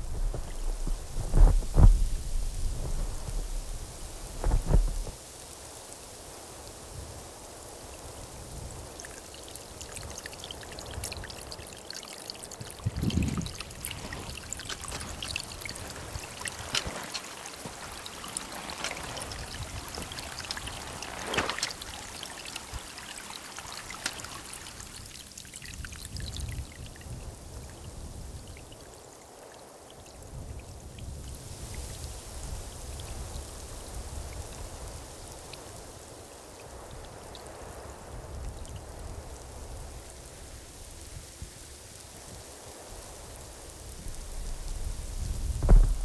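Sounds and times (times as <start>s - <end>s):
raindrops ticking on a surface: 0.0s - 28.9s, 29.7s - 46.0s
steady rain: 0.0s - 46.0s
low thud: 45.5s - 46.0s.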